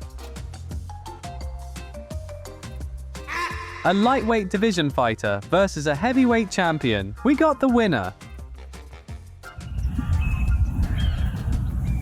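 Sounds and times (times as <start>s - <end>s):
background music: 0.0s - 12.0s
animal calling: 3.3s - 4.3s.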